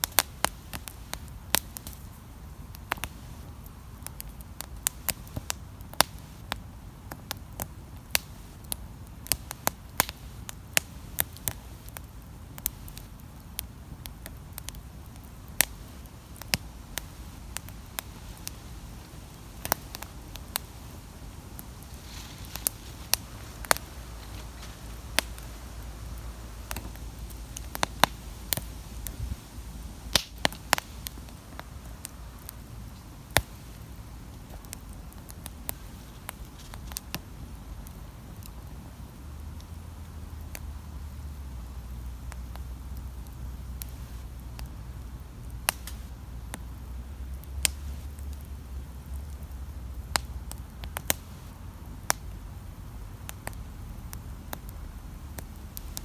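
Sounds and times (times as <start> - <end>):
campfire crackling: 0.0 - 56.0
fire hiss: 0.0 - 56.0
low steady rumble: 14.4 - 56.0.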